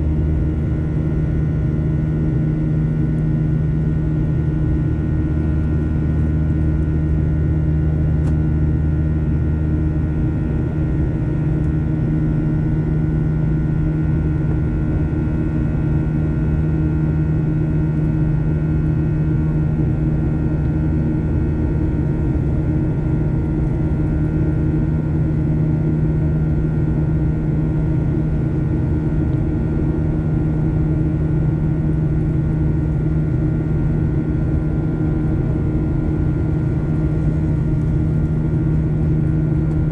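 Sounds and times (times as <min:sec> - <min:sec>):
jet cabin drone: 0:00.0 - 0:39.9
deeper hum: 0:26.4 - 0:39.9.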